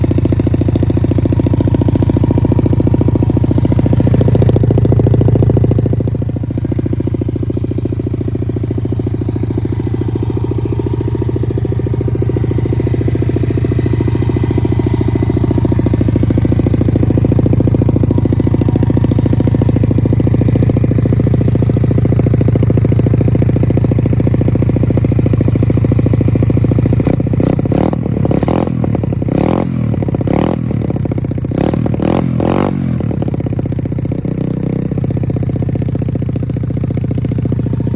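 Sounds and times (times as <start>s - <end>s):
motorbike engine idling: 0.0s - 37.9s.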